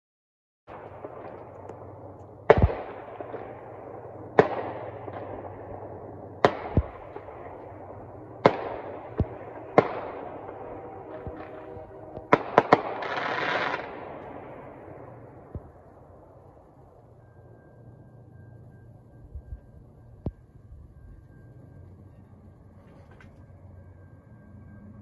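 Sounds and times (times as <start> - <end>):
distant fireworks bangs: 0.7 - 16.8
locomotive horn: 9.4 - 13.9.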